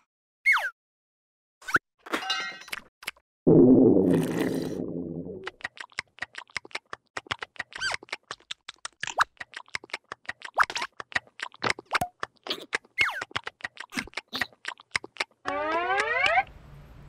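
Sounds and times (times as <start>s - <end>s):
cartoon clicks and taps: 5.4s - 16.5s
gliding squeaks and chirps: 15.4s - 16.5s.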